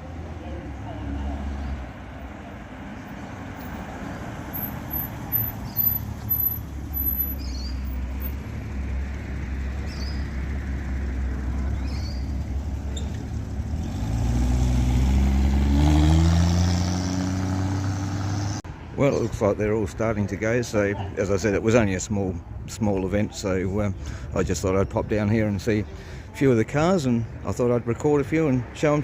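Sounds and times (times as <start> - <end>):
car engines running: 0.0 - 29.0
car accelerating close by: 10.5 - 18.6.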